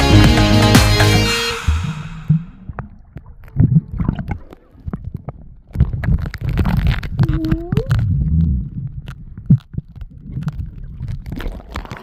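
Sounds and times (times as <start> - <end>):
short rising tone: 0.0 - 2.7
muffled underwater rumbling: 1.8 - 12.0.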